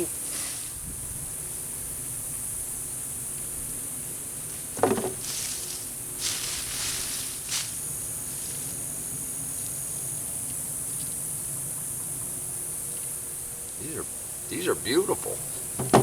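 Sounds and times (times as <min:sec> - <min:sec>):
hands rustling through dry mulch: 0:04.5 - 0:09.0
dull thump: 0:04.8 - 0:05.3, 0:15.6 - 0:16.0.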